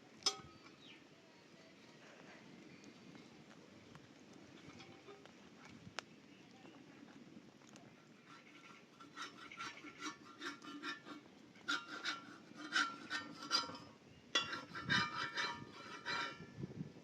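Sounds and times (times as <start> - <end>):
hand tool rasping strokes: 8.2 - 16.5.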